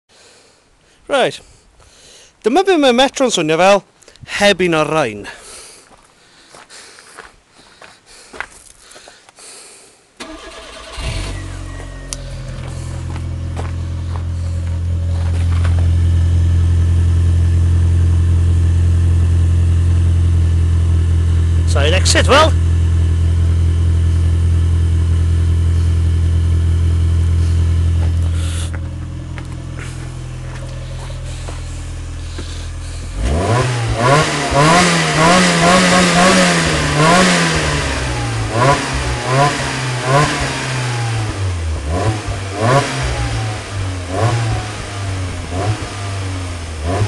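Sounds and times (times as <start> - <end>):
car engine idling and revving: 10.2 - 47.0.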